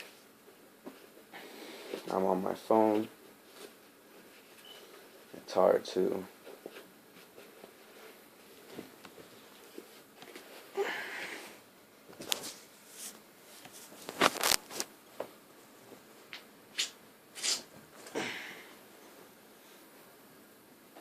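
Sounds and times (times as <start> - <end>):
handling rustles: 12.1 - 16.0.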